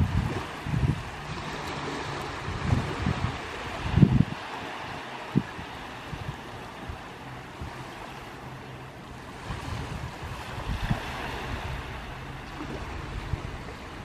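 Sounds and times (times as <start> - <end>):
sea waves washing onto beach: 0.0 - 14.0
wind buffeting microphone: 0.0 - 14.0.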